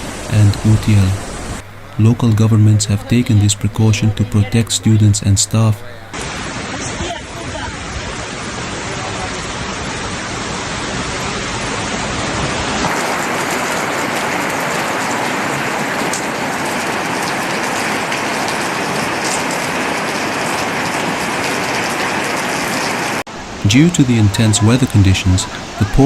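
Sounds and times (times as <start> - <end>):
heavy rain pouring: 0.0 - 26.0
light ticks of raindrops: 12.8 - 23.2.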